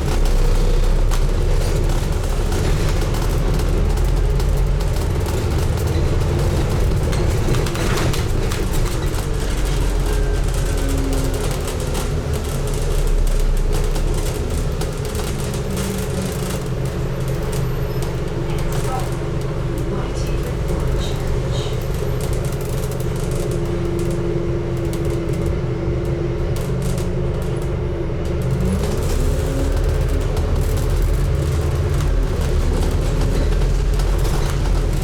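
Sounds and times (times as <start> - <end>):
bus engine rumble: 0.0 - 35.0
road noise: 0.0 - 35.0
small clicks and rattles: 0.0 - 35.0.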